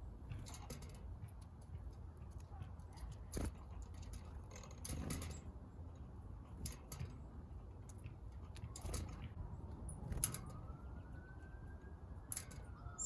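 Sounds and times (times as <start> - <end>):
distant siren wail: 9.7 - 13.0.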